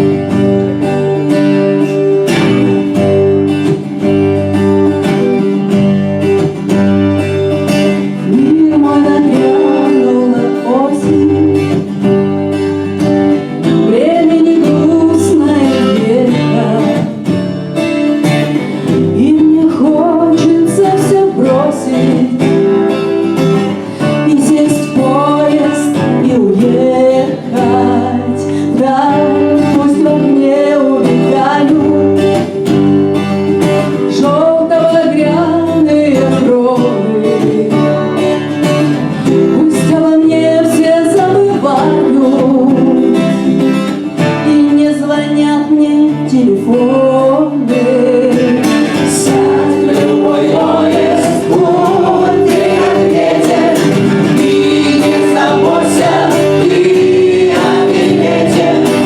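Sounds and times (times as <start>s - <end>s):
acoustic guitar: 0.0s - 59.0s
group singing: 23.6s - 31.9s, 48.2s - 59.0s.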